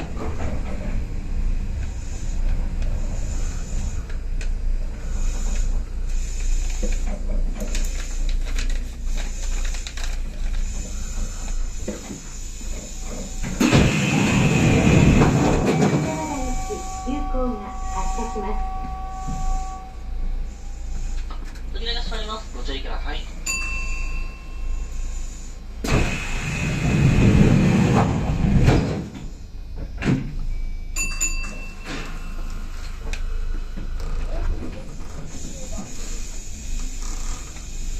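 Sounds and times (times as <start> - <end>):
train doors thudding shut: 0.0 - 3.0, 11.8 - 17.4, 25.8 - 33.1
rush of air and rumble: 0.0 - 17.9, 25.4 - 29.8
electric train humming: 0.0 - 37.9
steady high tone: 12.7 - 25.5
short tone: 15.4 - 21.3.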